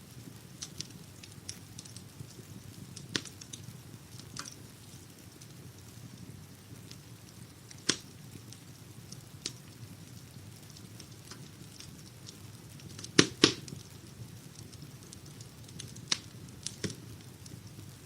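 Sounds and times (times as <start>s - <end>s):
wood fire crackling: 0.0s - 18.0s
loud fire pops: 0.3s - 18.0s.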